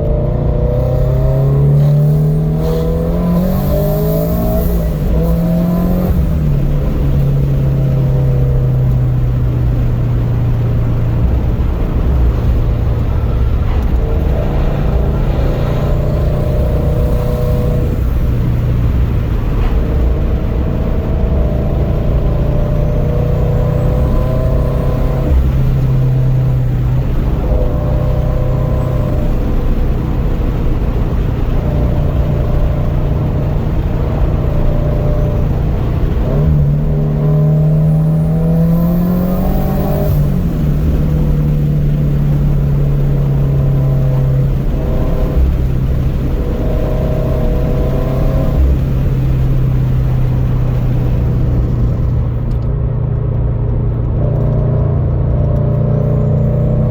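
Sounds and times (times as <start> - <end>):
car engine rumble: 0.0 - 56.9.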